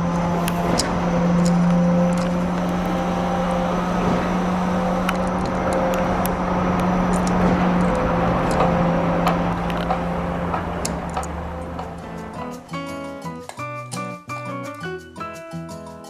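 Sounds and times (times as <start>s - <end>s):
truck engine hum: 0.0s - 13.8s.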